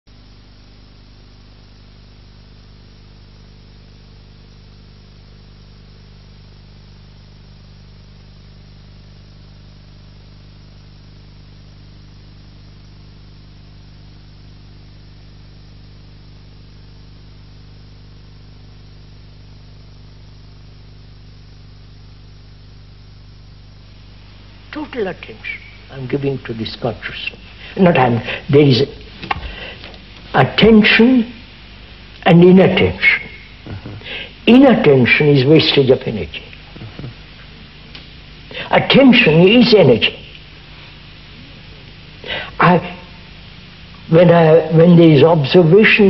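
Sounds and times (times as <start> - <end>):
low electrical hum: 0.1 - 46.0
steady hiss: 0.1 - 46.0.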